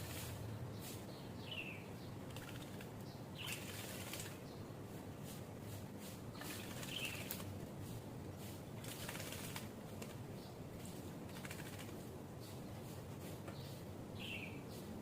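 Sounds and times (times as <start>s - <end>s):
bird splashing and fluttering: 2.3s - 4.5s, 6.0s - 7.7s, 8.4s - 12.1s.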